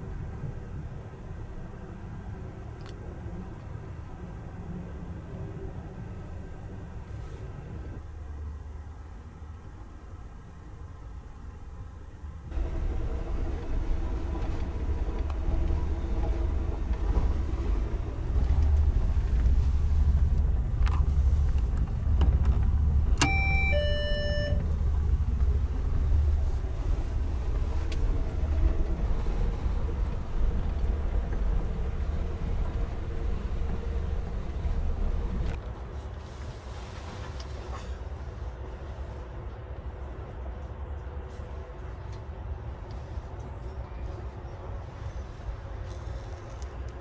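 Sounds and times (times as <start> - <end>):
train car rumble: 0.0 - 47.0
call button click: 23.2 - 24.6.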